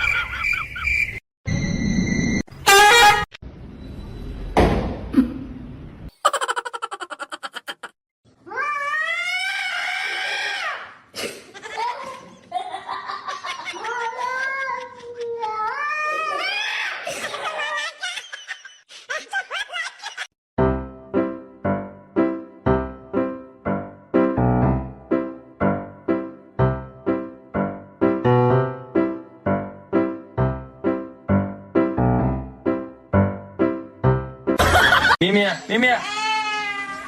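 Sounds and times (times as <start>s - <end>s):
cat yowling: 8.5s - 10.7s.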